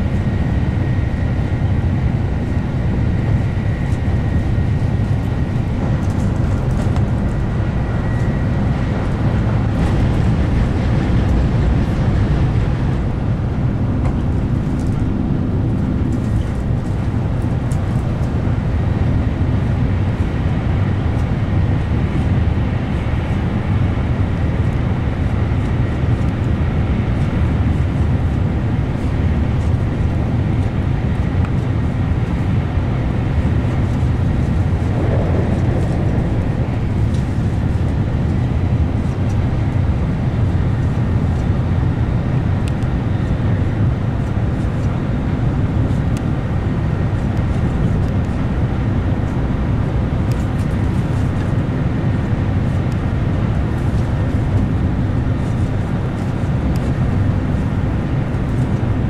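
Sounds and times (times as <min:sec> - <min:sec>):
train cabin rumble with hiss: 0:00.0 - 0:59.0.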